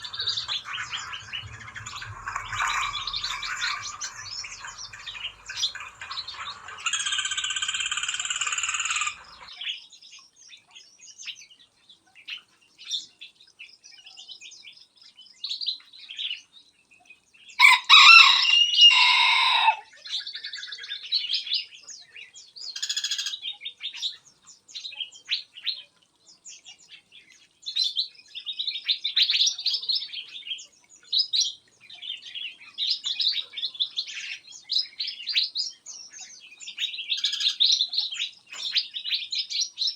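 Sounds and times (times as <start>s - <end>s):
long held bird call: 0.0s - 9.5s, 17.6s - 19.8s
songbirds chirping: 0.0s - 39.9s
rooster crowing: 17.6s - 19.9s.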